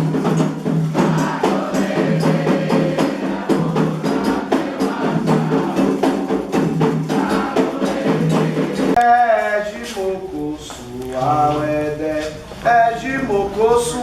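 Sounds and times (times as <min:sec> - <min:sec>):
agogo bell: 0:00.0 - 0:09.0
hand drums playing: 0:00.0 - 0:10.2
sung voices: 0:00.9 - 0:14.0.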